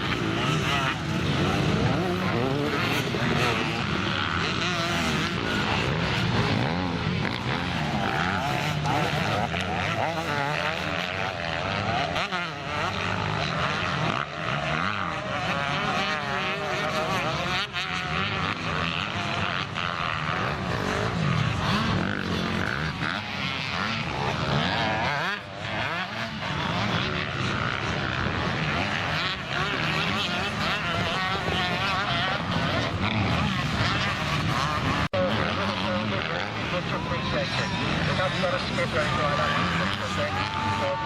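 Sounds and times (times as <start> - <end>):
motocross bike engines revving: 0.0 - 41.0.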